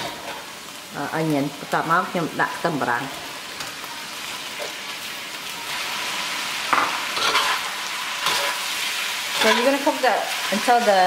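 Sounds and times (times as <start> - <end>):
food sizzling in oil in a wok: 0.0 - 11.0
metal spatula scraping a pan: 5.5 - 11.0.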